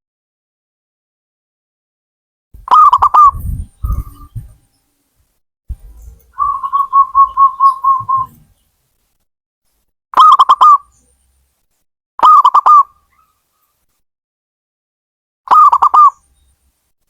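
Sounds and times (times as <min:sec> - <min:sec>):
dove cooing: 0:02.6 - 0:04.6, 0:05.7 - 0:08.5, 0:15.5 - 0:16.2
low rumbling: 0:02.6 - 0:04.6.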